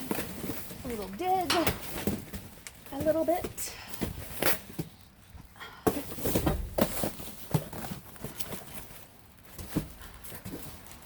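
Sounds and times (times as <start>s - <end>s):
knocks and thuds of boxes: 0.0s - 5.0s, 5.8s - 11.0s
rummaging through trash: 0.0s - 11.0s.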